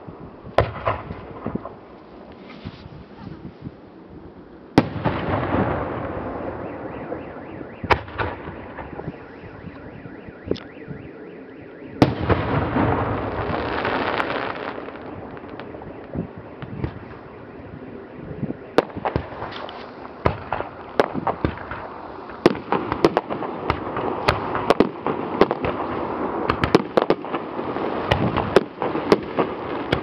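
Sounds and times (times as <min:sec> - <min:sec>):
firework crackling: 0:12.0 - 0:17.6, 0:18.4 - 0:30.0.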